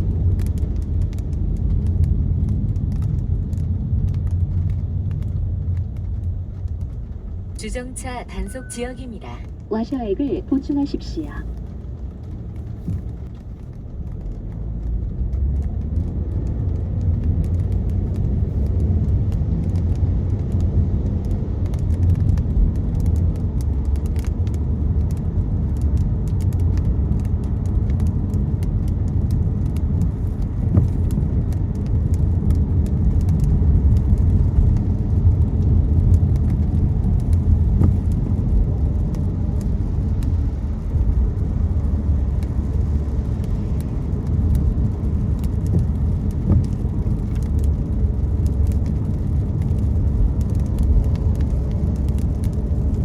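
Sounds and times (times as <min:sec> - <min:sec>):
raindrops ticking on car: 0:00.0 - 0:08.3, 0:09.5 - 0:53.0
tyres and engine rumbling: 0:04.6 - 0:16.3.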